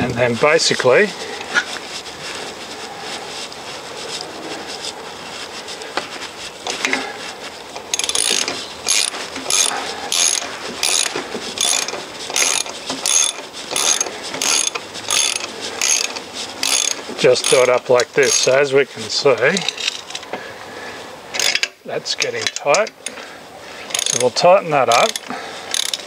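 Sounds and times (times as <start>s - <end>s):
tool handling: 5.9s - 18.6s, 19.3s - 20.4s, 21.3s - 26.0s
ratchet wrench clicking: 7.9s - 18.5s, 21.3s - 21.7s, 23.9s - 26.0s.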